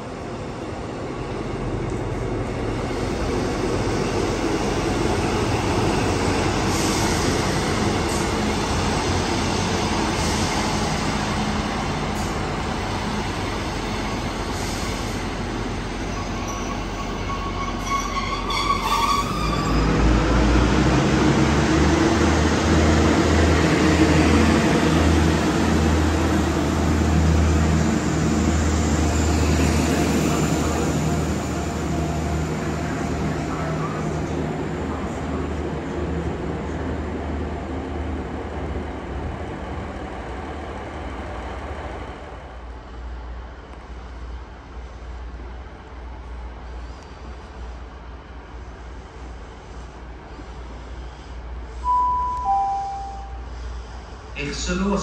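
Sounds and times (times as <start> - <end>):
diesel train running: 0.0 - 55.0
high-pitched wheel squeal: 16.1 - 20.0.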